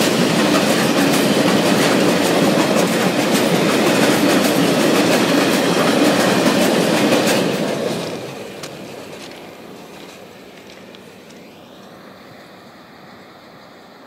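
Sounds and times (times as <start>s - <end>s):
steel wheels clacking over rail joints: 0.0s - 11.1s
freight train rumbling past: 0.0s - 14.0s.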